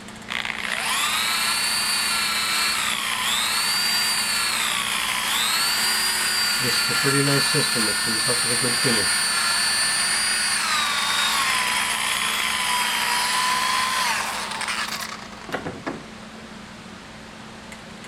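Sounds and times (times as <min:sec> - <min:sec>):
electric buffing wheel whining: 0:00.0 - 0:15.6
short knocks: 0:15.5 - 0:16.1.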